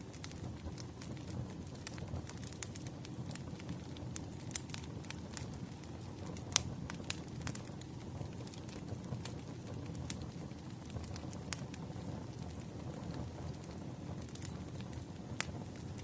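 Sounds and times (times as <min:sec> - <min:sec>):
wood fire crackling: 0:00.0 - 0:16.0
sharp pops and snaps: 0:00.1 - 0:09.4.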